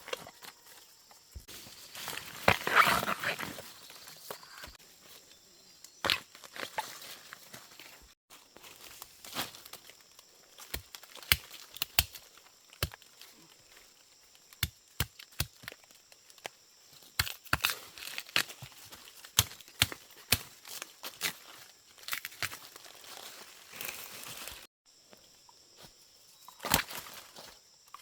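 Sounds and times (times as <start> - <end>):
dry plant stalks snapping: 10.6 - 13.0, 17.2 - 21.4, 22.0 - 22.8.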